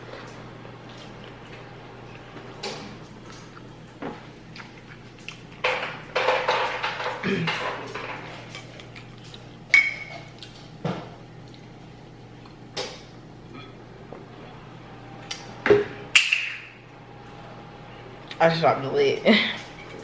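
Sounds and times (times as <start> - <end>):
dishes and cutlery clinking: 5.6 - 11.1.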